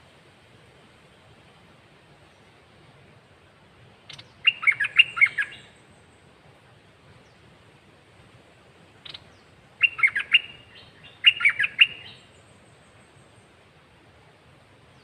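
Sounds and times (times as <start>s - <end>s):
bird singing warbled phrases: 4.1s - 6.0s, 9.0s - 13.5s.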